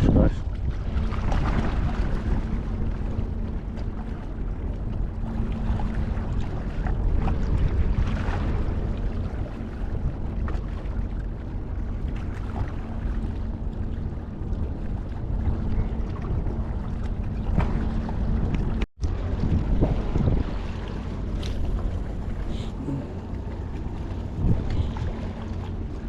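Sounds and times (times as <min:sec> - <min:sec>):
wind rumbling on microphone: 0:00.0 - 0:26.0
faint steady hum: 0:20.4 - 0:26.0.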